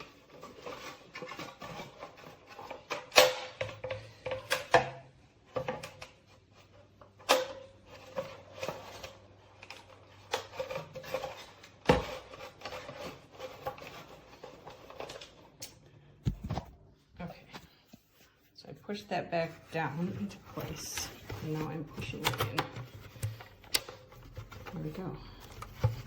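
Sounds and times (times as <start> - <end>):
rubbing and rustling: 0.0 - 3.2, 7.8 - 15.6, 16.2 - 26.0.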